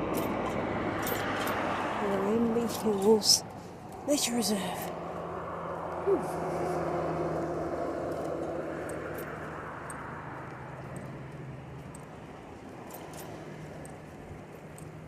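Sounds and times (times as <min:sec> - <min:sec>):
passing motor vehicle: 0:00.0 - 0:15.0.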